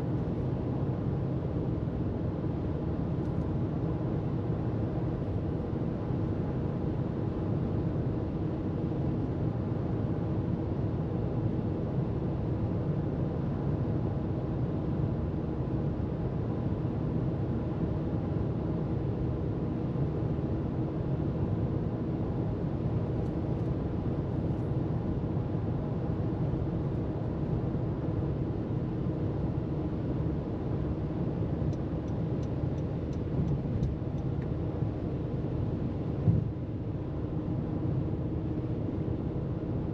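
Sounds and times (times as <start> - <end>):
low engine hum: 0.0 - 39.9.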